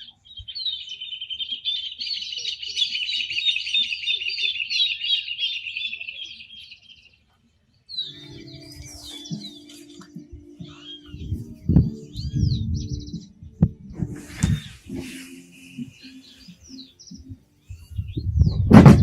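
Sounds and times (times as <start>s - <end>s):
bird chirps: 0.0s - 18.8s
songbird singing: 0.0s - 19.0s
steady low tone: 8.1s - 19.0s.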